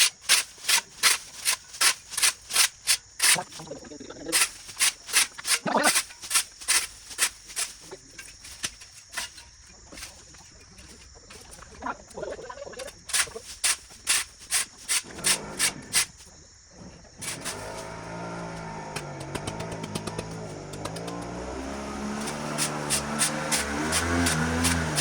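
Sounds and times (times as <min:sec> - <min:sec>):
small engine running: 0:17.2 - 0:25.0
sharp chopping strikes: 0:18.8 - 0:25.0.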